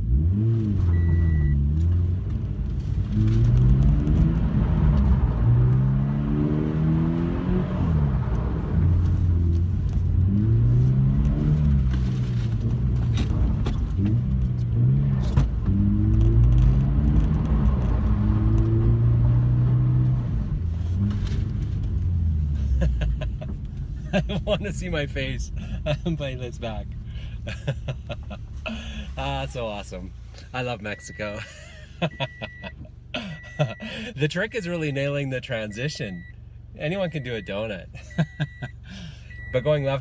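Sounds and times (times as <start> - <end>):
car engine revving: 0.0 - 31.4.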